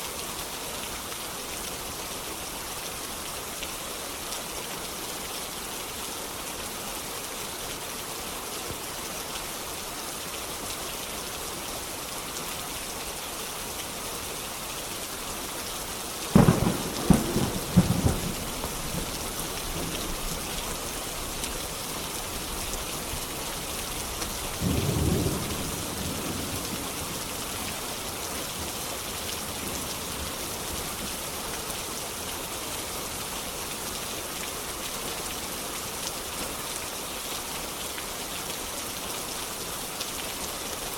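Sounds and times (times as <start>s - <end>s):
steady rain: 0.0s - 40.9s
low rumble of thunder: 16.3s - 20.4s, 24.6s - 27.3s.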